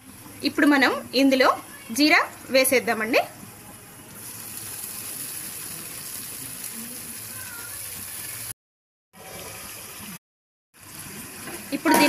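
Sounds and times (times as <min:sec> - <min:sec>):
onions sizzling in hot oil: 0:04.0 - 0:08.6, 0:10.8 - 0:12.0.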